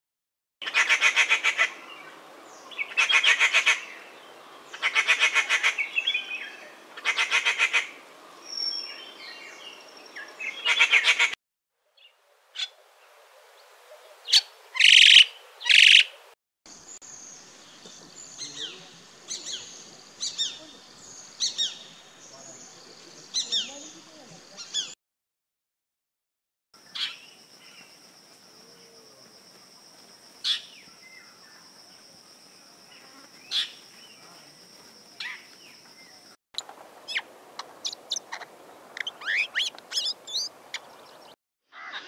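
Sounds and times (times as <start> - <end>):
harsh rattling bird calls: 0.6 - 6.4, 7.0 - 11.4, 14.3 - 25.0, 26.8 - 28.0, 32.9 - 36.4, 37.1 - 42.0
quiet bird chirps: 16.7 - 25.0, 37.1 - 41.4.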